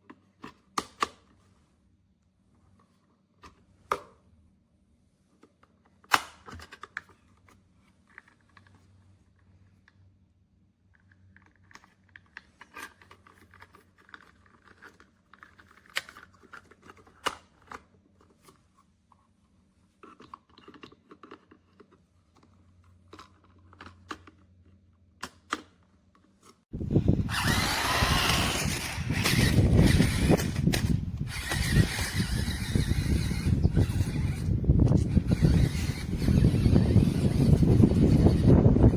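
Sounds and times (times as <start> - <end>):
toy truck motor whirring: 26.8 - 38.9.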